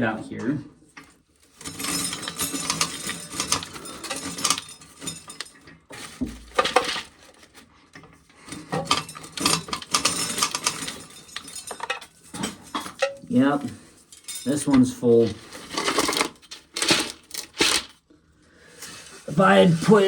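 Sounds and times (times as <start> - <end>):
corn kernels rattling into container: 1.5 - 7.5, 8.8 - 13.6, 14.3 - 18.0.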